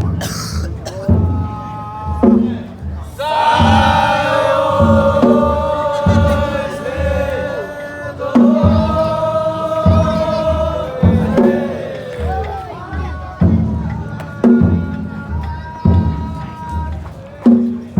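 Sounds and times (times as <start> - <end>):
deep taiko drum beats: 0.0 - 17.9
chant in long held notes: 3.1 - 16.8.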